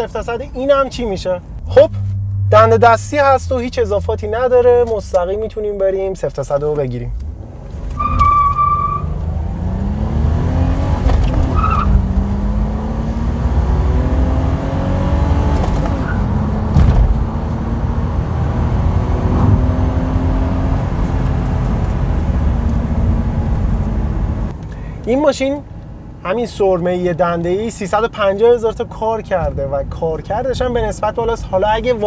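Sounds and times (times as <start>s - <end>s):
car engine accelerating: 1.6s - 5.0s, 7.2s - 24.5s.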